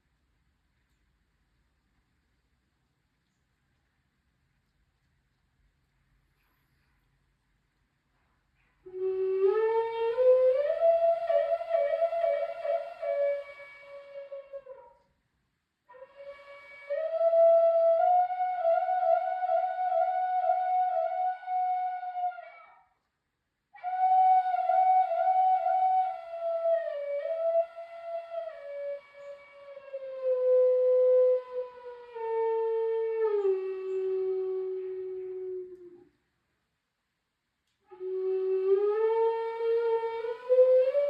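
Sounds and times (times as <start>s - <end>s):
solo flute slow melody: 8.8s - 15.1s, 15.9s - 23.0s, 23.7s - 36.2s, 37.8s - 41.0s.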